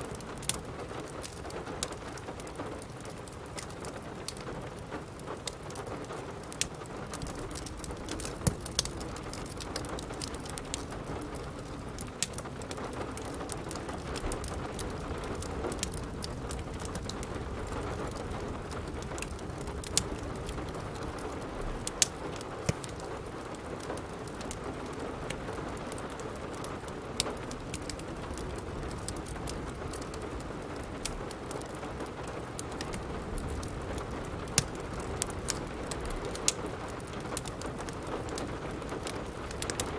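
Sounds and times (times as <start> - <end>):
rain falling: 0.0 - 39.9
wood fire crackling: 0.0 - 39.9.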